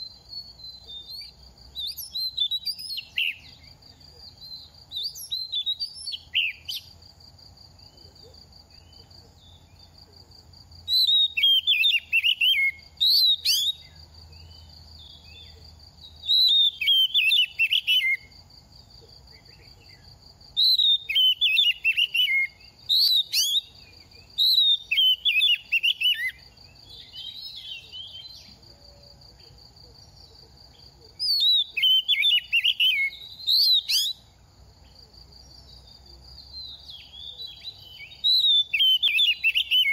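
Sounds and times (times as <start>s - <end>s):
bird singing whistled phrases: 0.0s - 3.7s, 4.3s - 6.9s, 10.9s - 14.0s, 16.2s - 18.3s, 20.6s - 28.5s, 31.2s - 34.3s, 36.6s - 39.9s.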